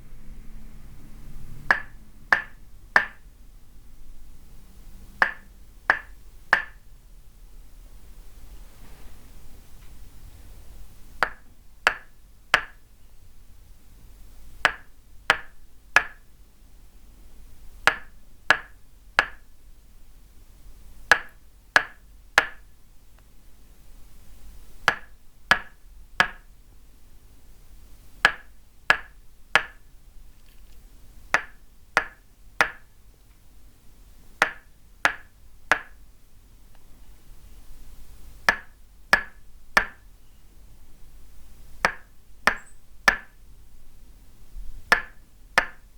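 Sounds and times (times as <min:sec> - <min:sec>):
wooden mallet knocking wooden peg: 0:01.6 - 0:03.3, 0:05.2 - 0:06.8, 0:11.2 - 0:12.8, 0:14.6 - 0:16.3, 0:17.8 - 0:19.5, 0:21.1 - 0:22.6, 0:24.9 - 0:26.5, 0:28.2 - 0:29.9, 0:31.3 - 0:32.9, 0:34.4 - 0:36.0, 0:38.5 - 0:40.1, 0:41.8 - 0:43.4, 0:44.9 - 0:45.9.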